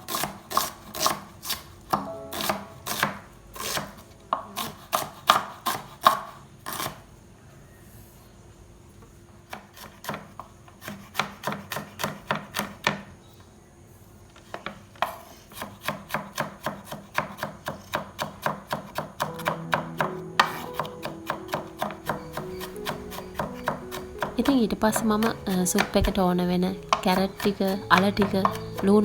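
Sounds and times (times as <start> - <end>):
knife chopping on cutting board: 0.0 - 7.0, 9.5 - 13.1, 15.0 - 26.2, 26.8 - 29.0.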